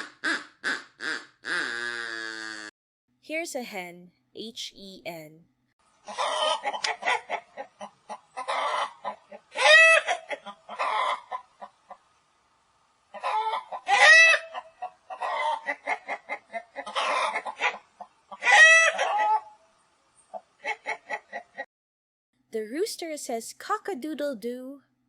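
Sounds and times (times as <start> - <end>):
hen cackling call: 0.0 - 2.7, 6.1 - 11.7, 13.1 - 19.6
hen clucking: 6.0 - 12.1, 13.1 - 19.6, 20.3 - 21.6.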